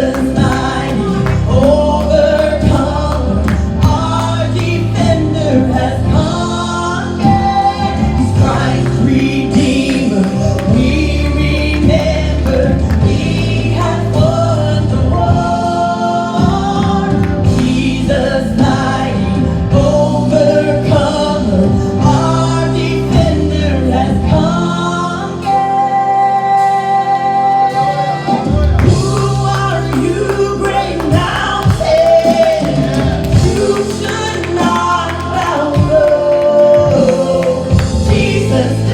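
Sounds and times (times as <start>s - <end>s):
instrumental accompaniment with bass: 0.0s - 38.9s
voices singing gospel song: 0.0s - 38.9s.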